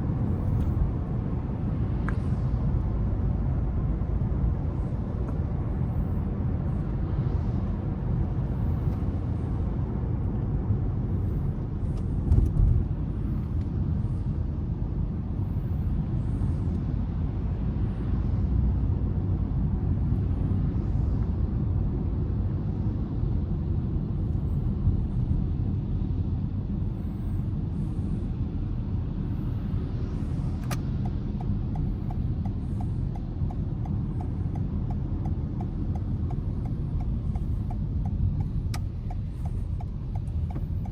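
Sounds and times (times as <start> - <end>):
car engine and tyre rumble: 0.0 - 40.9
turn signal ticking: 30.6 - 40.9.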